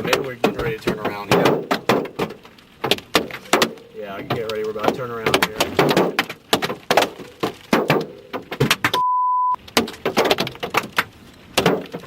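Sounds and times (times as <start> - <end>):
hailstones knocking on vehicle: 0.0 - 9.0, 9.6 - 12.0
steady beep: 9.0 - 9.6.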